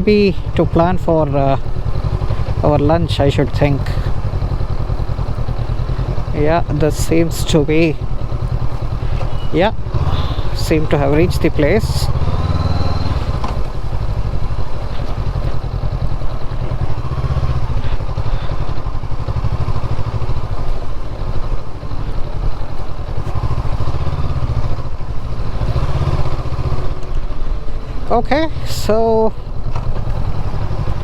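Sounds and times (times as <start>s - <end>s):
motorcycle engine at low speed: 0.0s - 31.0s.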